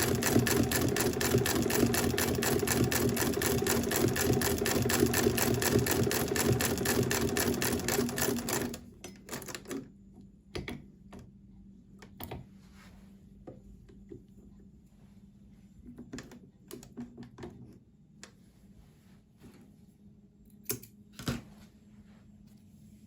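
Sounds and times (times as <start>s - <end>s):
hand-crank sewing machine clatter: 0.0s - 9.8s.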